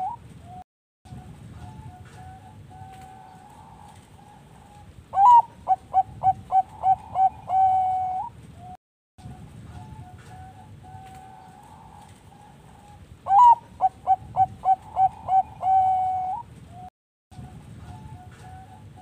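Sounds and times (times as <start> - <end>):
doves cooing: 1.6 - 8.7, 9.7 - 16.9.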